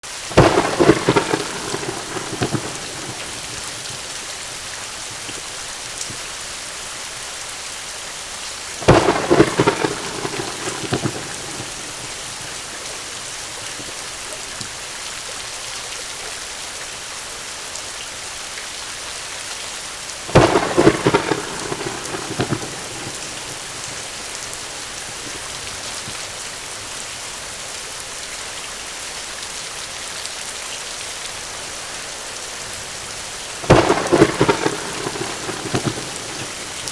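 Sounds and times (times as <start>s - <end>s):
heavy rain hissing: 0.0s - 36.9s
thunderclap cracking and rumbling: 0.3s - 6.2s, 8.8s - 14.8s, 20.2s - 27.1s, 31.0s - 36.9s.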